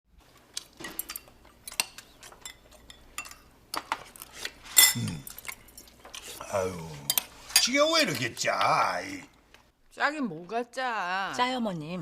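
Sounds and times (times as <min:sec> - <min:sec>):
cutlery clinking against dishes: 0:00.8 - 0:04.1, 0:04.7 - 0:05.9.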